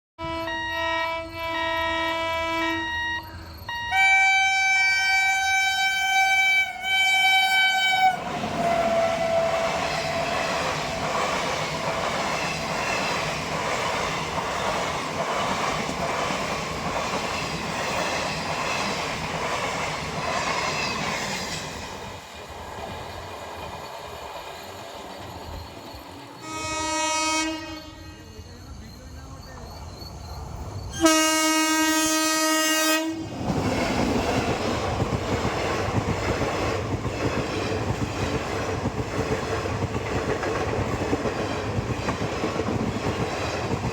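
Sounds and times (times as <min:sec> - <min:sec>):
locomotive horn blasts: 0:00.2 - 0:09.8, 0:26.4 - 0:28.3, 0:31.0 - 0:33.3
train wheel-and-rail noise: 0:00.2 - 0:43.9.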